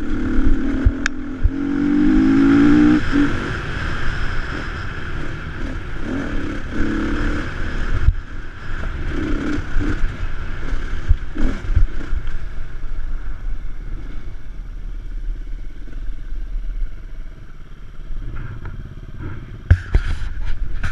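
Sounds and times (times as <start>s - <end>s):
dirt bike engine revving: 0.0s - 12.4s.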